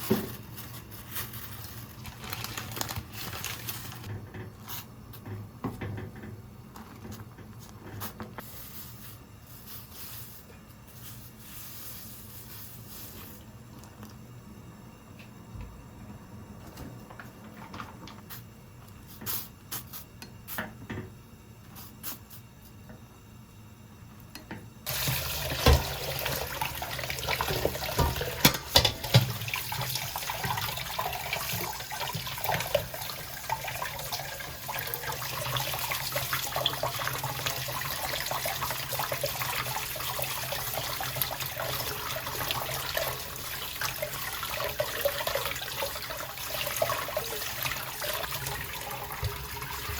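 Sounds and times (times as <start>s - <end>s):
tap water running into sink: 24.9s - 49.9s
clunks in sink: 25.5s - 26.1s, 27.4s - 29.5s.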